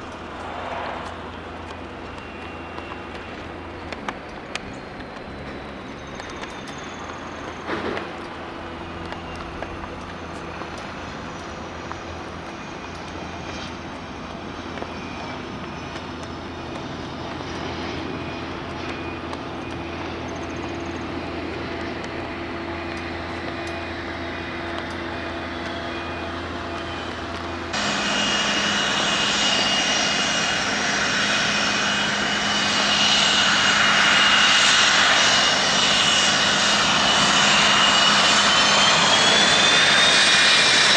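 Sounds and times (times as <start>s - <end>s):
jet engine noise: 0.0s - 40.9s.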